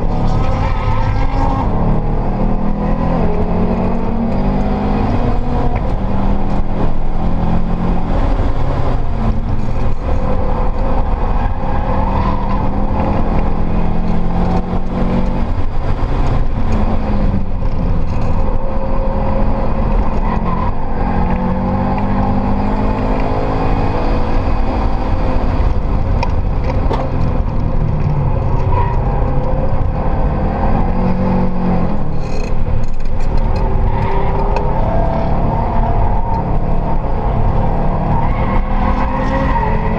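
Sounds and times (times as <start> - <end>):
car engine revving: 0.0 - 39.9
road and tyre noise: 0.0 - 39.9.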